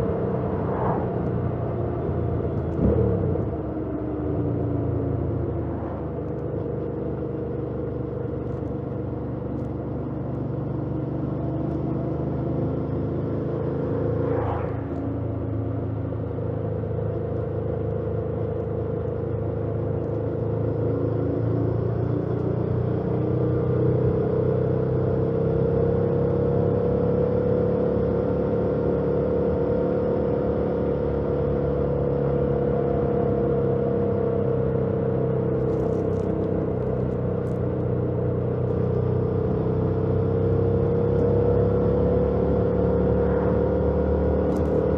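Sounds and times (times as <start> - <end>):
brief rising and falling sound: 0.4 - 1.7, 13.9 - 15.3.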